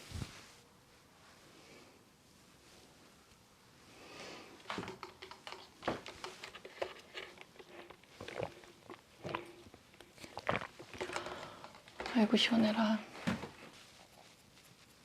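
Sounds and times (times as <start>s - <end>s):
cosmetics clicking and tapping: 4.7s - 6.8s, 10.9s - 12.2s.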